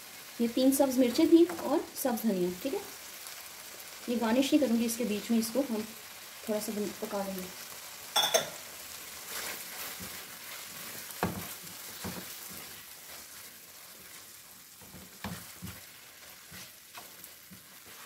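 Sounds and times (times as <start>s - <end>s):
chicken sizzling in a pan: 0.0s - 18.0s
wooden spatula scraping a pan: 9.2s - 18.0s.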